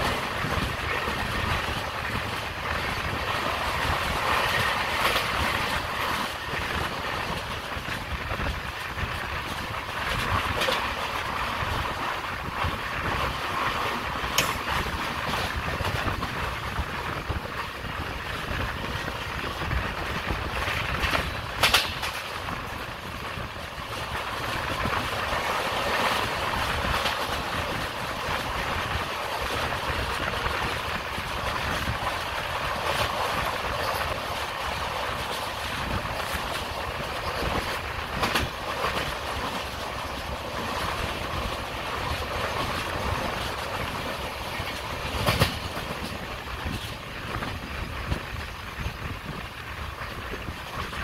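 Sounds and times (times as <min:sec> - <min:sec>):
train wheels rushing on rails: 0:00.0 - 0:51.0
sharp wheel clacks: 0:21.0 - 0:22.3.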